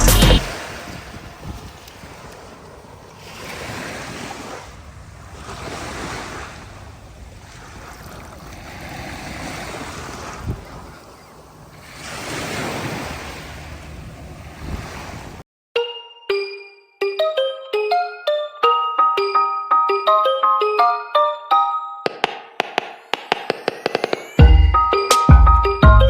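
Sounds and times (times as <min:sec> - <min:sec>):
sea waves washing onto beach: 0:00.4 - 0:15.4
wind buffeting microphone: 0:00.4 - 0:15.4.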